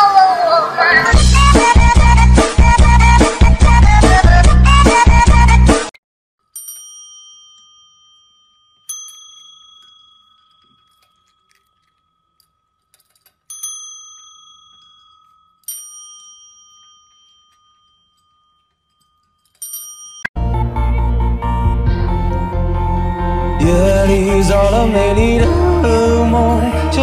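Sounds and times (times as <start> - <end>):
desk service bell ringing: 6.5 - 20.4.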